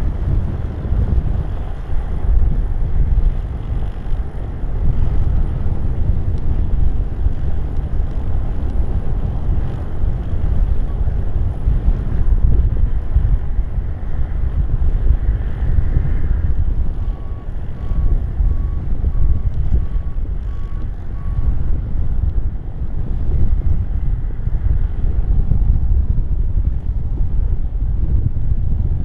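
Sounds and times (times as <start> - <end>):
wind buffeting microphone: 0.0 - 29.0
short beeps: 17.0 - 21.6.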